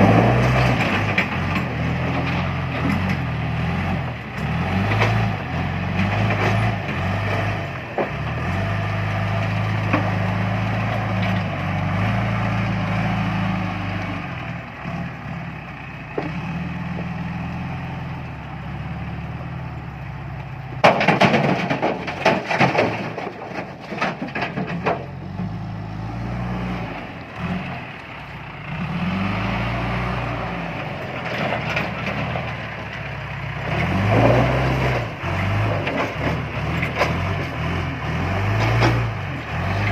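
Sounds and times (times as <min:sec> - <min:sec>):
stones crashing into truck bed: 0:00.0 - 0:03.2, 0:20.8 - 0:25.4, 0:33.7 - 0:37.4
diesel engine revving: 0:00.0 - 0:39.9.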